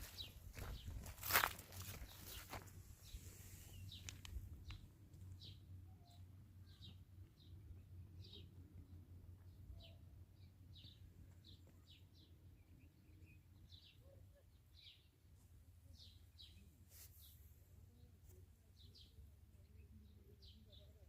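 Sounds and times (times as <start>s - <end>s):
low steady hum: 0.0s - 21.0s
faint bird chirps: 5.4s - 8.6s.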